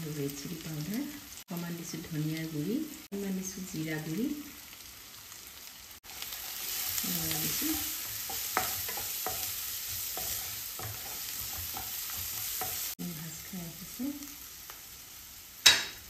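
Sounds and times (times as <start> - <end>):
onions sizzling in hot oil: 0.0 - 16.0
stirrer tapping pan: 7.3 - 13.0.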